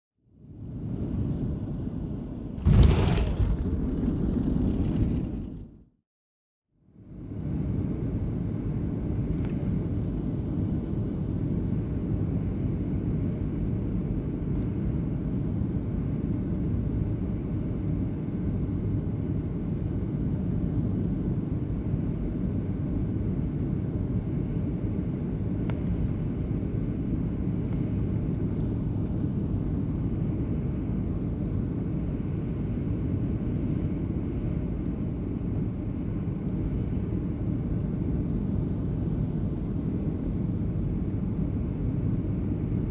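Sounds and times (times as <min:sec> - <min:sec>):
airliner cabin rumble: 0:02.6 - 0:06.0.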